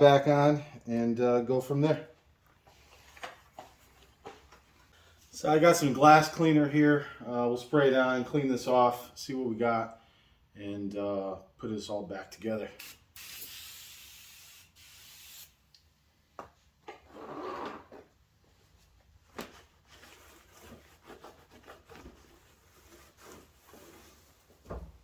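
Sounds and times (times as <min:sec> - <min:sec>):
spray bottle hissing: 0:12.8 - 0:15.6.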